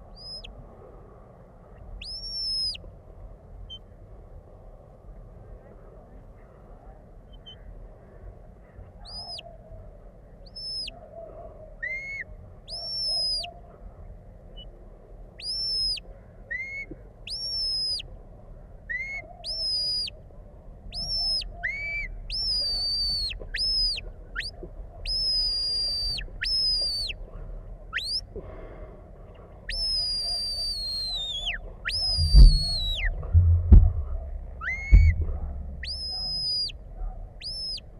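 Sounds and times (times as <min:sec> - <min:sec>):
short high whistled commands: 0:29.7 - 0:33.2, 0:34.6 - 0:36.8
wind rumble: 0:31.7 - 0:37.9.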